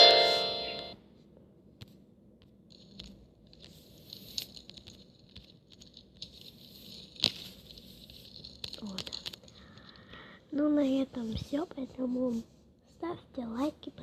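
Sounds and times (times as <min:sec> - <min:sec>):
bright chime: 0:00.0 - 0:01.0
squishing slime: 0:02.7 - 0:14.0.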